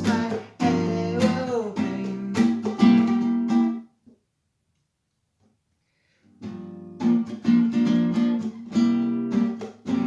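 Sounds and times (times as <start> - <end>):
acoustic guitar strumming: 0.0 - 3.8, 6.4 - 10.0.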